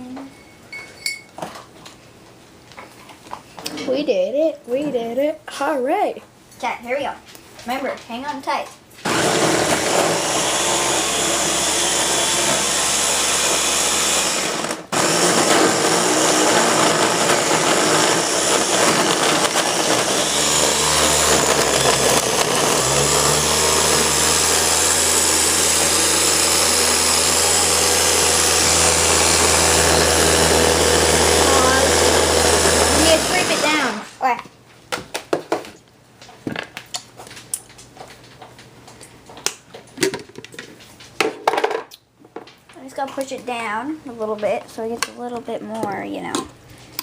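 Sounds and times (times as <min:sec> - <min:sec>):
blender motor running: 0:09.0 - 0:34.2.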